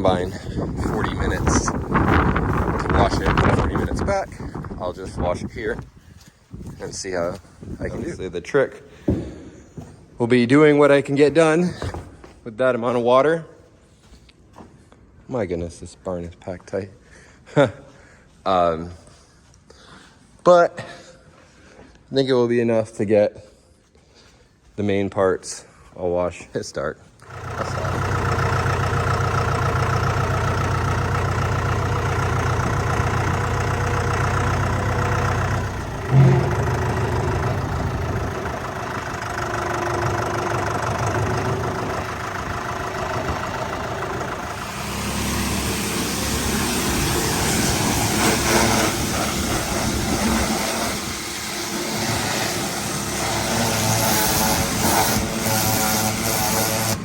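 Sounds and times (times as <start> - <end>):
engine running: 0.0 - 5.9, 27.2 - 57.0
sharp thump: 36.0 - 38.6
pressure washer water spray hissing: 44.5 - 57.0.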